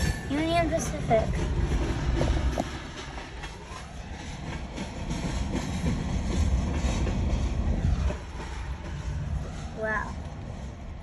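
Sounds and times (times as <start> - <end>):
diesel locomotives rumbling past: 0.0 - 11.0.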